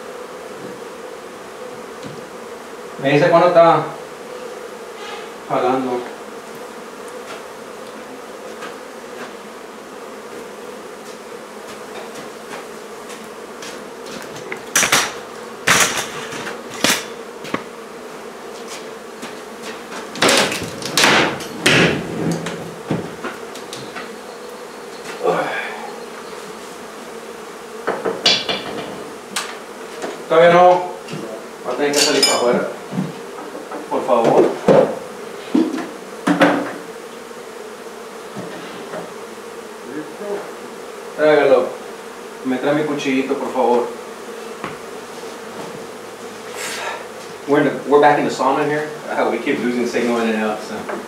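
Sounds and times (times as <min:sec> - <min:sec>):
bees humming: 0:00.0 - 0:51.0
wooden boards knocking and banging: 0:19.2 - 0:24.1, 0:27.8 - 0:30.2, 0:32.9 - 0:36.9.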